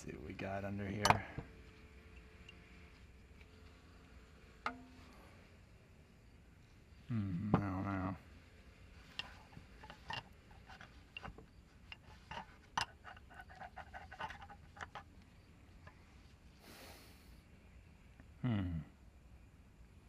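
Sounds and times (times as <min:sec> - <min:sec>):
hand tools clicking on metal: 0:09.1 - 0:15.1.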